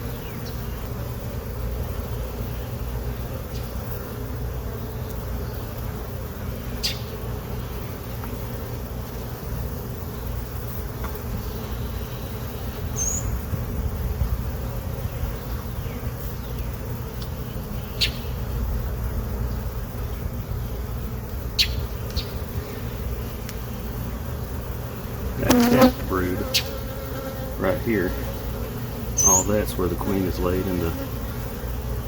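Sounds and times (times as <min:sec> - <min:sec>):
honey bees buzzing: 0:00.0 - 0:32.0.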